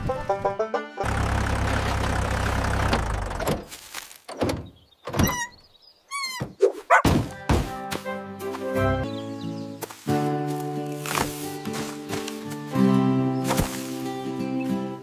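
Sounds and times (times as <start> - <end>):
wavering squeaks: 5.1 - 6.8.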